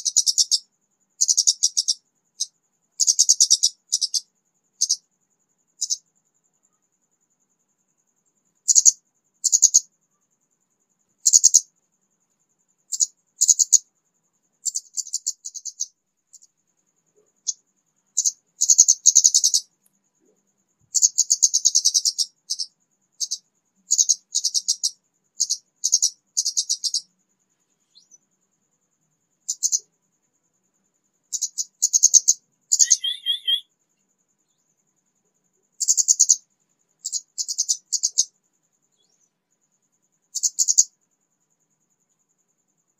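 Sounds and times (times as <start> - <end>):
thrush twittering song: 0.0 - 6.9, 12.8 - 34.8, 35.8 - 39.5.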